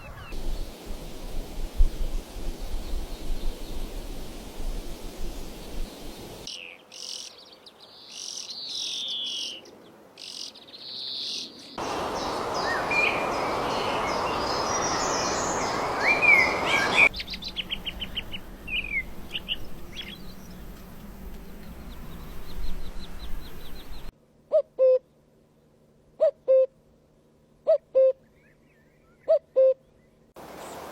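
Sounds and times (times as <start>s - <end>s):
songbirds chirping and singing: 5.8s - 24.1s
steady rushing noise: 11.8s - 24.1s.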